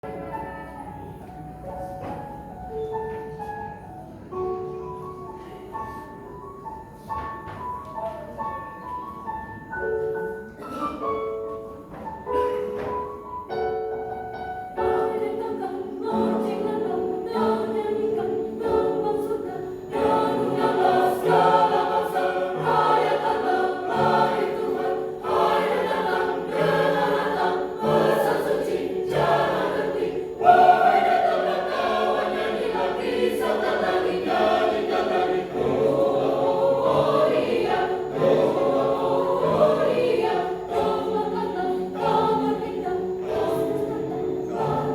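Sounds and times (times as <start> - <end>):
church choir singing a hymn: 13.7 - 44.9.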